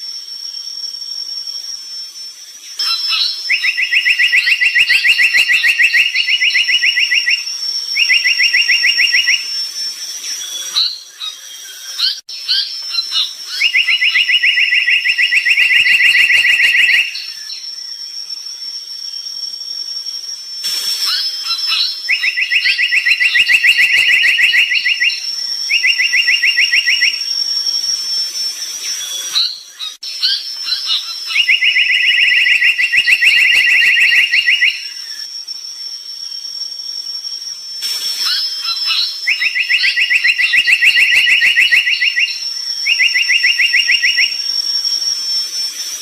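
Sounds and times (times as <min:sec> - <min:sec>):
steady high-pitched whine: 0:00.0 - 0:46.0
songbird chirping and trilling: 0:02.4 - 0:18.4, 0:21.0 - 0:27.5, 0:28.7 - 0:35.3, 0:38.1 - 0:44.4.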